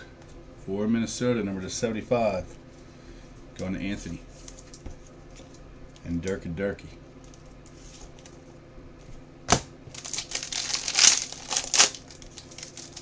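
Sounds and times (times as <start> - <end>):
plastic packaging crinkling: 9.5 - 13.0.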